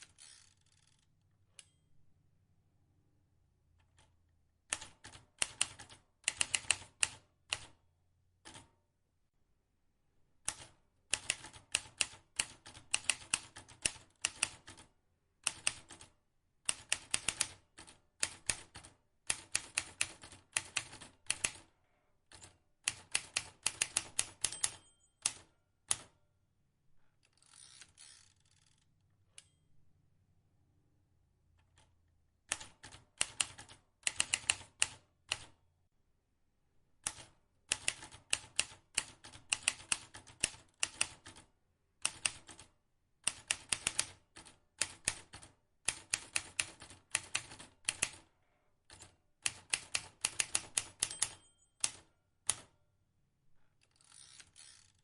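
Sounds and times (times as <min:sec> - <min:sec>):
typewriter keys clicking: 0:04.7 - 0:07.2, 0:10.5 - 0:14.8, 0:22.4 - 0:26.1, 0:32.5 - 0:35.5, 0:37.0 - 0:41.4, 0:43.3 - 0:48.2, 0:48.9 - 0:52.7.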